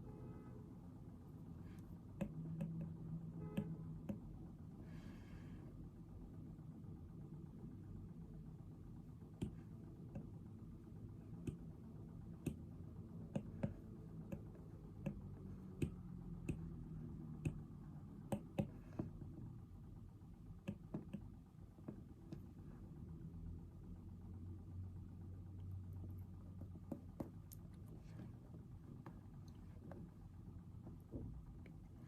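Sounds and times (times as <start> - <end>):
low room hum: 0.0 - 32.0
clicks and taps on a desk: 2.2 - 4.3, 9.4 - 10.4, 11.4 - 11.7, 12.4 - 12.7, 13.3 - 19.3, 20.6 - 22.4, 26.5 - 27.6.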